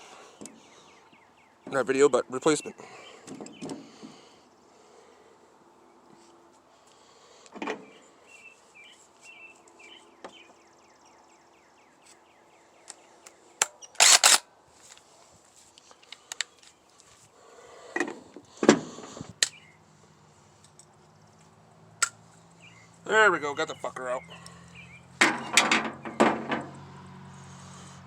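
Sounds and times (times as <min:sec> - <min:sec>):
metal clatter: 0:25.2 - 0:26.8.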